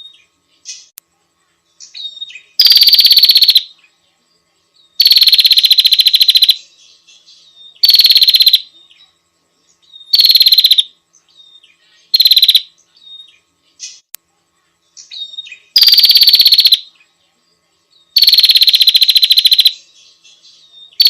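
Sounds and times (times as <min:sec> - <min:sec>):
bird rattling trill call: 0:02.1 - 0:03.7, 0:05.0 - 0:06.6, 0:07.8 - 0:08.7, 0:10.1 - 0:10.9, 0:12.1 - 0:12.7, 0:15.8 - 0:16.9, 0:18.2 - 0:19.8.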